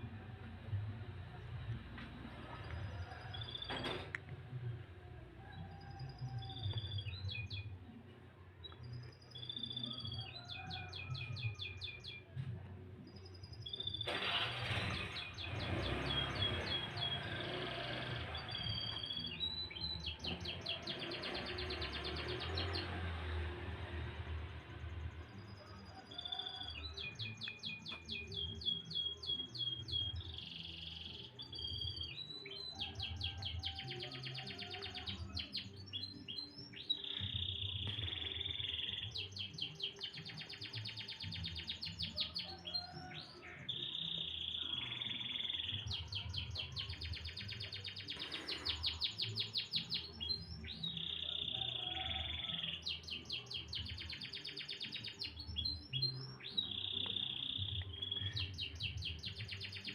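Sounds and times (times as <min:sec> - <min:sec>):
canary singing: 0:13.5 - 0:23.3, 0:26.0 - 0:59.9.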